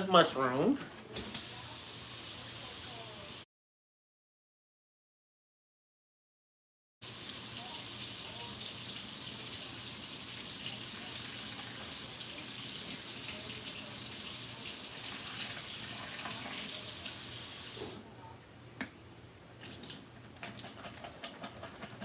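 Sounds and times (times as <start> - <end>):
faucet running water into sink: 1.2 - 3.4, 7.0 - 18.0, 19.6 - 22.0.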